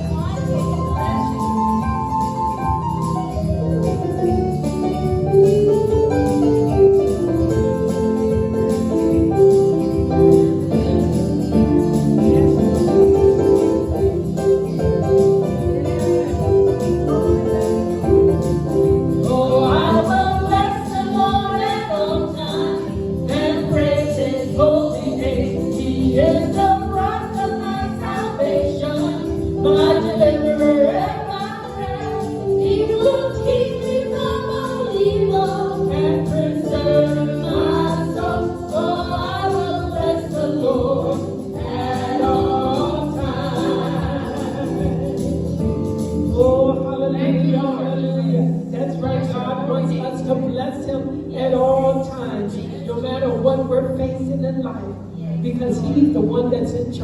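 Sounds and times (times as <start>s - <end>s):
instrumental backing: 0.0s - 57.0s
voices singing gospel: 18.7s - 53.9s.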